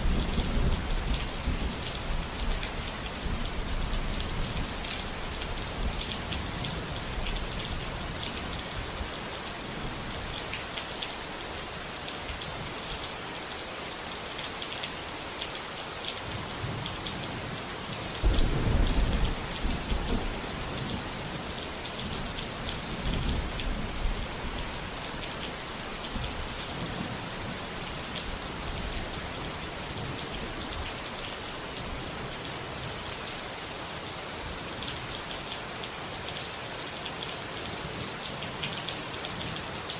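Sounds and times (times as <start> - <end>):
rain pattering: 0.0 - 39.9
thunder rumble: 18.2 - 21.3.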